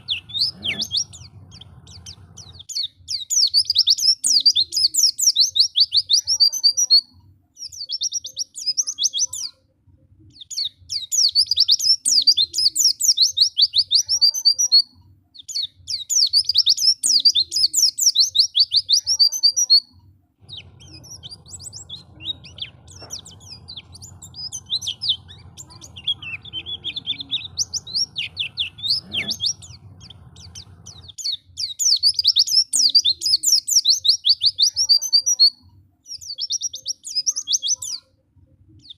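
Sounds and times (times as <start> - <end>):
low hum: 0.0 - 2.6, 20.4 - 31.2
bird twittering high chirps: 0.0 - 9.6, 10.3 - 38.1
soft scattered bird calls: 0.0 - 38.9.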